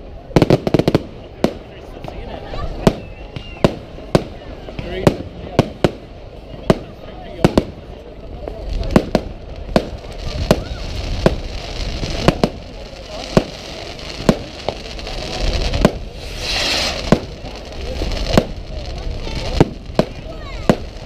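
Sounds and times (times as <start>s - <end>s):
fireworks bangs: 0.2s - 21.0s
short hiss: 16.1s - 17.1s.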